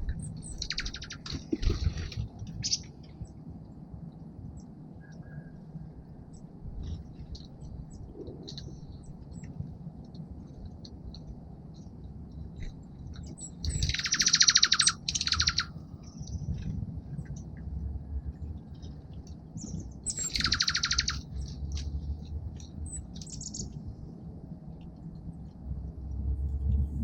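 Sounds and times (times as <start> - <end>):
low background rumble: 0.0 - 27.0
songbird buzzy trills: 0.1 - 3.4, 13.2 - 16.5, 19.4 - 21.9, 22.8 - 23.7
bird chips: 0.3 - 2.9, 12.6 - 16.6, 18.8 - 22.0, 22.6 - 23.8.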